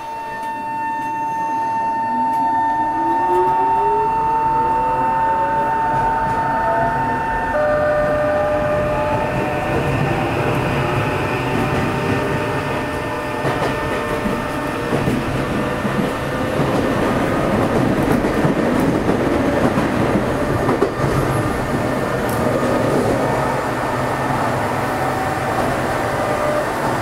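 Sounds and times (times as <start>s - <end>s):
wheels rumbling on rails: 3.0s - 27.0s.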